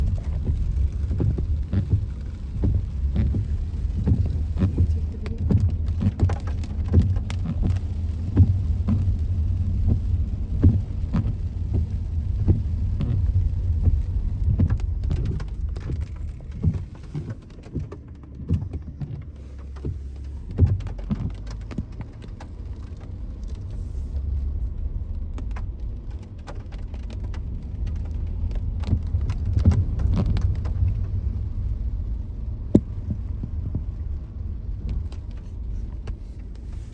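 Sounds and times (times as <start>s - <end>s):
vehicle driving on wet road: 0.0s - 36.9s
small taps and knocks: 9.8s - 23.6s.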